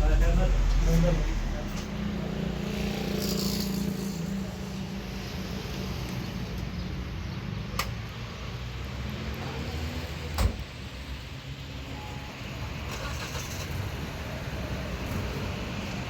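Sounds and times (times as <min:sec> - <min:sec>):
car engine running: 0:00.0 - 0:02.4
car door shutting: 0:10.4 - 0:10.7.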